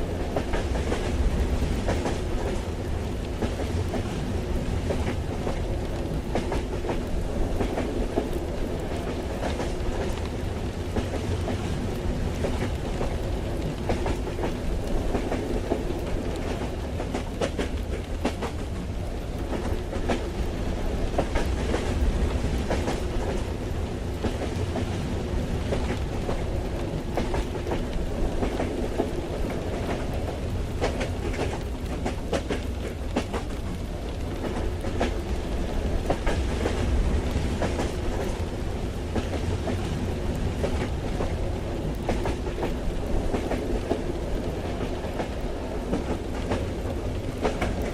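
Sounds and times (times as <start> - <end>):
rain hiss: 0.0 - 47.9
train carriage rumble: 0.0 - 47.9
train wheels clacking: 0.1 - 2.7, 6.3 - 18.8, 25.6 - 47.9.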